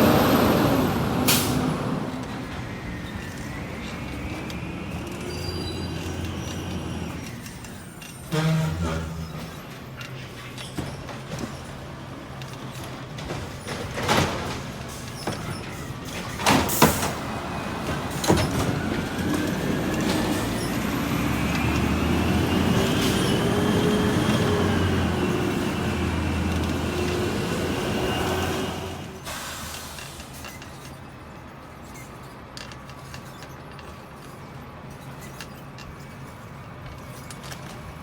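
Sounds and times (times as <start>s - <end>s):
truck engine revving with whine: 0.0s - 7.3s, 17.3s - 29.2s.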